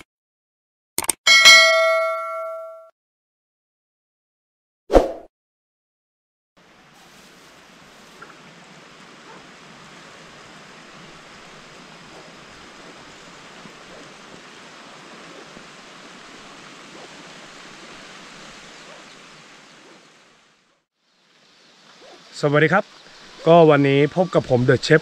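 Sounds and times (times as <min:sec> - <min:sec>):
heavy rain falling: 0:06.6 - 0:20.7.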